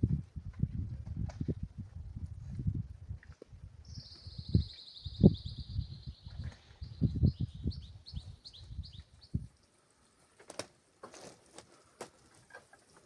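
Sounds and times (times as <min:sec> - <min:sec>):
songbird trilling: 0:03.9 - 0:09.4.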